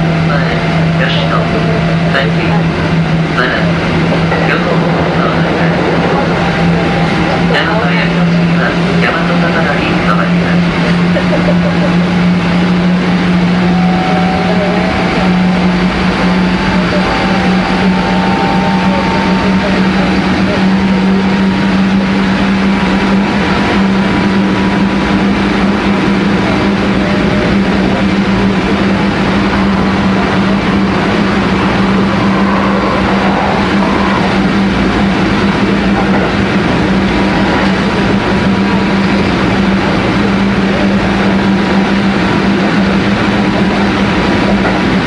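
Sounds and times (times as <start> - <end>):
train low hum: 0.0 - 45.0
wheels rumbling on rails: 0.0 - 45.0.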